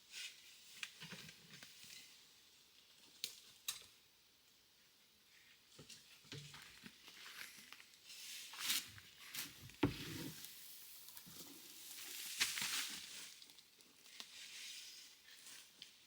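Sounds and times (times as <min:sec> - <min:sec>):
compost rustling and scraping: 0:07.2 - 0:13.4.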